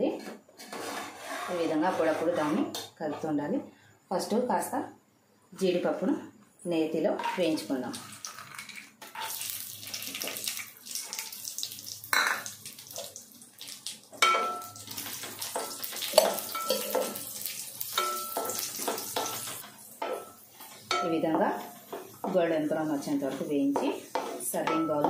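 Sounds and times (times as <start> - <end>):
nuts sizzling in hot ghee: 7.5 - 25.0
spoon clinking against pan: 14.2 - 14.9, 15.5 - 17.3, 17.9 - 21.2.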